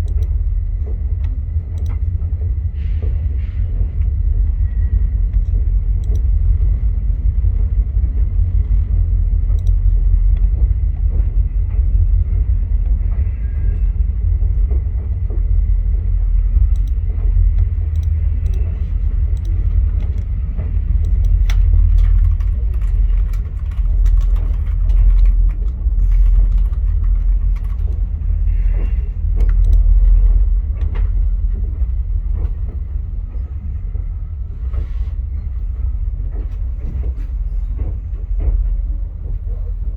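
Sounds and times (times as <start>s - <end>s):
train rumbling on track: 0.0s - 39.9s.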